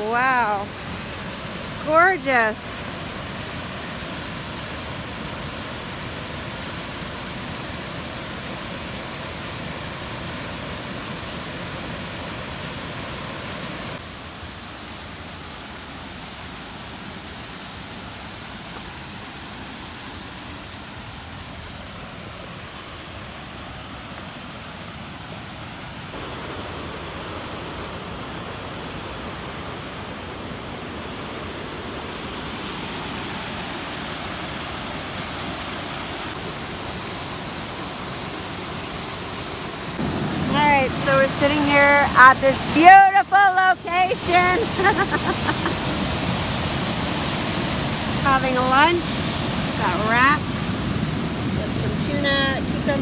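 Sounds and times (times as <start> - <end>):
flowing water rushing: 0.0 - 53.0.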